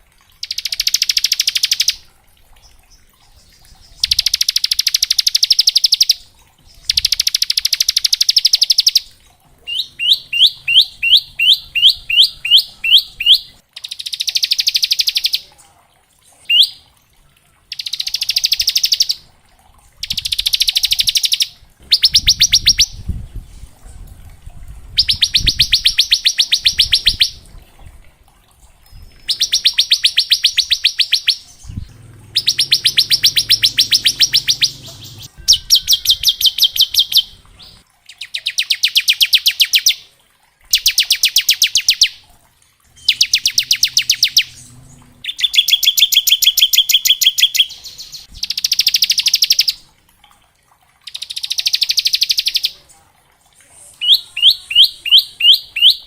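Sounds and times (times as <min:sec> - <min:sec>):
bird singing rapid trills: 0:00.4 - 0:02.0, 0:02.6 - 0:09.1, 0:09.7 - 0:15.5, 0:16.4 - 0:16.8, 0:17.7 - 0:19.3, 0:20.0 - 0:23.0, 0:25.0 - 0:27.4, 0:28.8 - 0:40.0, 0:43.0 - 0:49.8, 0:51.1 - 0:52.8, 0:54.0 - 0:56.0.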